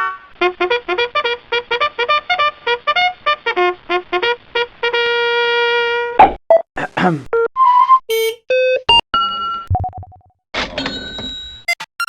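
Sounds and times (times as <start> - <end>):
synthesized brass jingle: 8.1 - 8.4.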